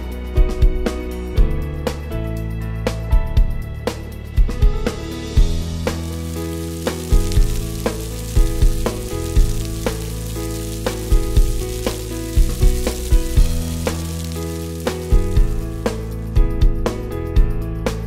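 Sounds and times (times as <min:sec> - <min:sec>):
background music with steady beat: 0:00.0 - 0:18.0
onion sizzling in hot oil: 0:05.3 - 0:16.2.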